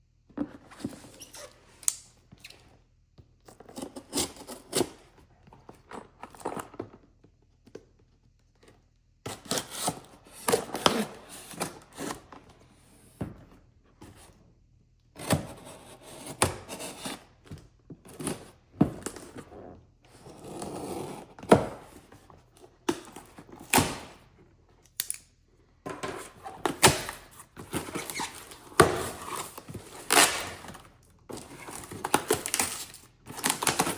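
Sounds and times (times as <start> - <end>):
packaging rustling: 26.2 - 33.9.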